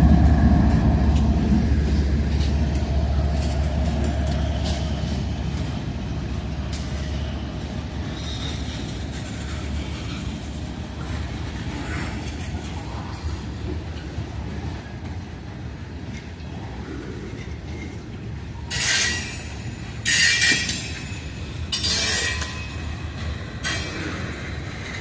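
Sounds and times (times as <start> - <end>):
freight train cars rolling past: 0.0 - 25.0.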